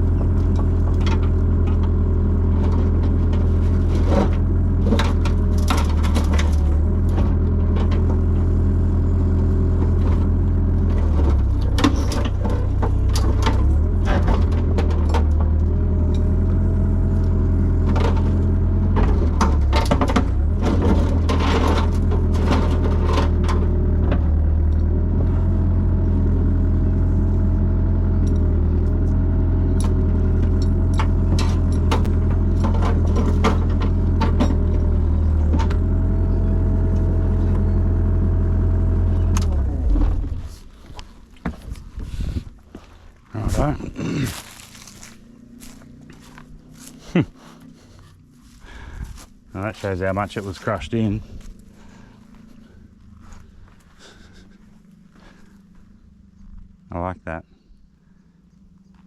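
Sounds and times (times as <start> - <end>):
hydraulic whine: 0.0 - 42.8
excavator engine running: 0.0 - 59.0.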